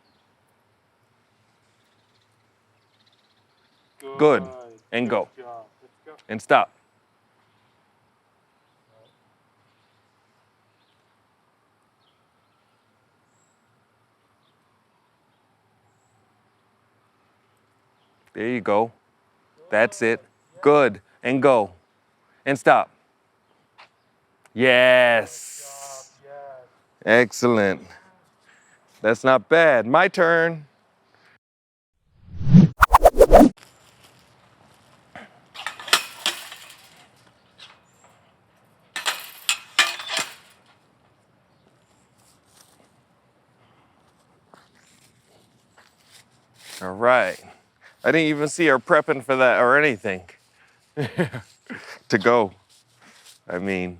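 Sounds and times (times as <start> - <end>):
faint outdoor background hiss: 0.0 - 31.3, 33.6 - 53.9
horse tack rattling: 35.6 - 37.8, 39.0 - 40.7.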